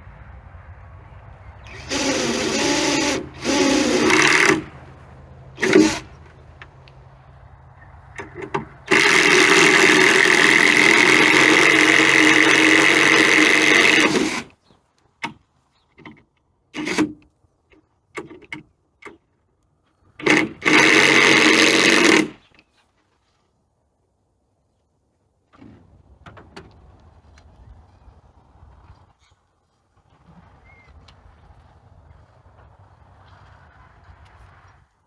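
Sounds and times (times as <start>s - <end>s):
loud motor-driven tool running: 1.7s - 6.4s, 8.2s - 14.5s, 16.8s - 17.1s, 20.2s - 22.4s.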